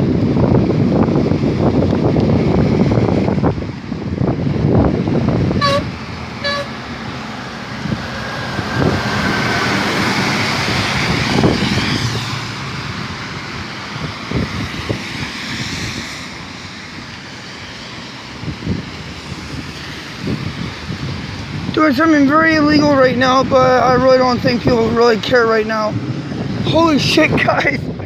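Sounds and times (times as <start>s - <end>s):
road traffic noise: 0.0s - 28.0s
wind buffeting microphone: 0.0s - 28.0s
horn toot: 5.6s - 6.8s.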